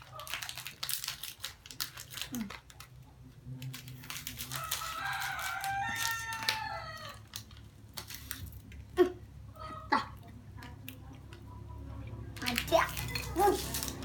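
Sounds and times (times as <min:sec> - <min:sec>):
rooster crowing: 0:04.4 - 0:07.3.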